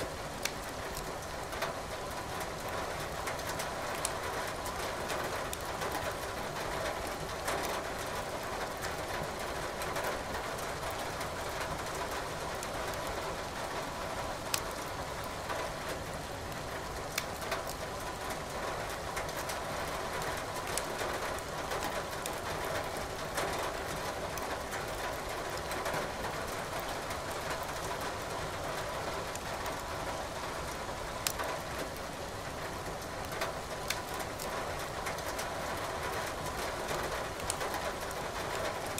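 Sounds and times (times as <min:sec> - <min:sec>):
wood fire crackling and popping: 0:00.4 - 0:01.4, 0:14.5 - 0:14.9, 0:17.1 - 0:17.8, 0:20.6 - 0:20.9, 0:21.7 - 0:22.4, 0:31.2 - 0:31.6, 0:33.0 - 0:35.5, 0:37.4 - 0:38.2.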